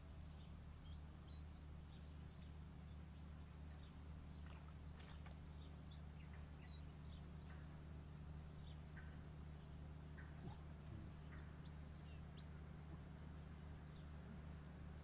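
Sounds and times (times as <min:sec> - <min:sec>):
low hum: 0:00.0 - 0:15.0
faint bird chirps and whistles: 0:00.1 - 0:07.6.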